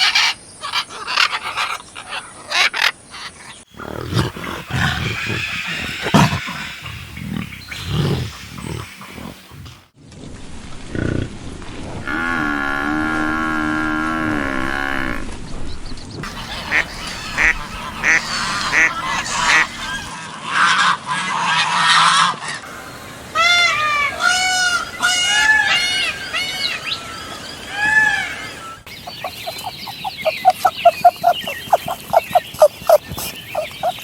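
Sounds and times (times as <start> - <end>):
waterfowl calling: 0.0 - 9.8, 16.2 - 20.2, 21.4 - 34.0
geese honking: 4.2 - 9.5, 16.2 - 20.2, 22.7 - 27.0, 27.7 - 34.0.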